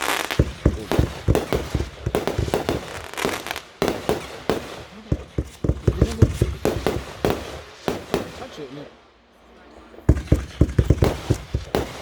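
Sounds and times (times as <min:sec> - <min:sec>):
fireworks hissing crackle: 0:00.0 - 0:08.6
fireworks bangs and booms: 0:00.0 - 0:08.9, 0:10.0 - 0:12.0.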